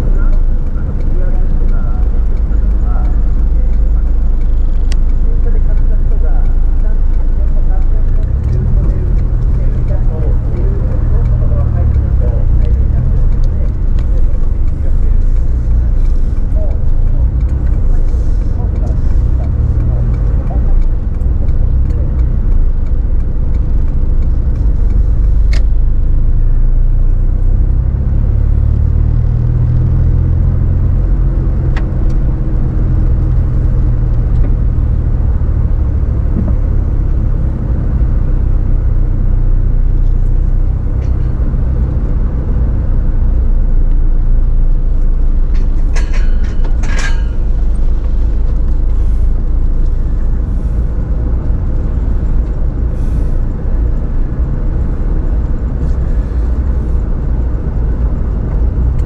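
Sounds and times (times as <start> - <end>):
car engine droning: 0.0 - 59.0
road noise inside car: 0.0 - 59.0
clicks and rattles: 45.5 - 49.0.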